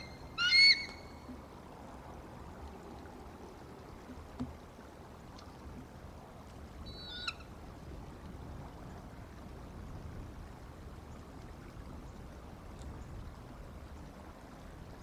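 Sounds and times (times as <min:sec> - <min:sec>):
high bird call: 0:00.0 - 0:01.2.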